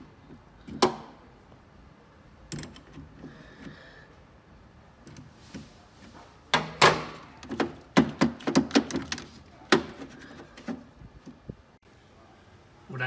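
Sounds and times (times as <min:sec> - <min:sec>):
tools and parts clicking: 0:02.4 - 0:03.7, 0:06.6 - 0:10.7.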